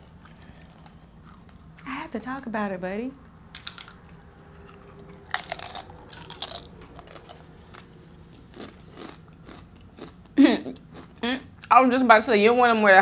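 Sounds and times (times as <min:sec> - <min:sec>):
chips being crunched: 0:03.5 - 0:04.2, 0:05.3 - 0:07.9.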